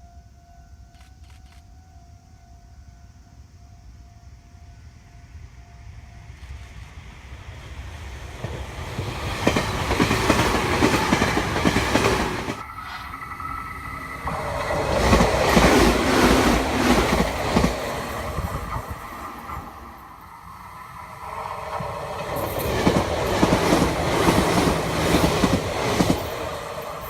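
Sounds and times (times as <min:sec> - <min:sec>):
electric train passing: 0:00.0 - 0:27.0
wheels clacking over rail joints: 0:08.3 - 0:27.0
steady rising tone: 0:09.7 - 0:27.0.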